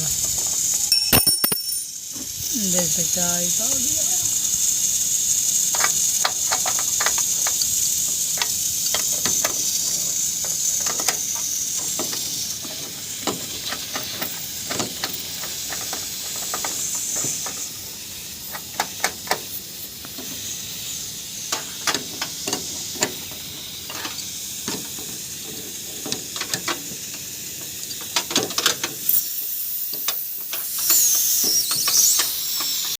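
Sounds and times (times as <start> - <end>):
gas hissing from a leak: 0.0 - 33.0
clicks and taps of fittings: 5.7 - 7.7, 10.4 - 17.6, 21.5 - 23.2, 23.9 - 29.2.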